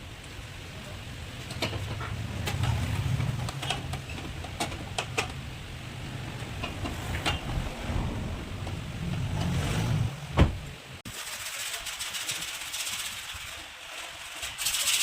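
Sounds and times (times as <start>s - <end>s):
low mechanical rumble: 0.0s - 11.0s
sharp clicks and knocks: 1.4s - 5.6s.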